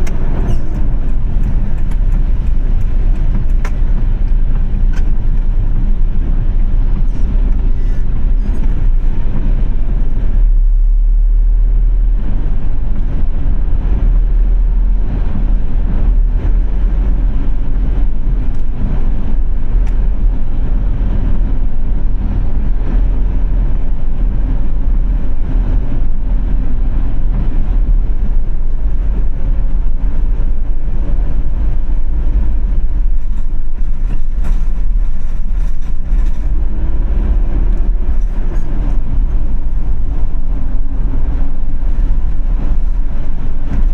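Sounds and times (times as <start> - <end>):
car road and engine rumble: 0.0 - 43.9.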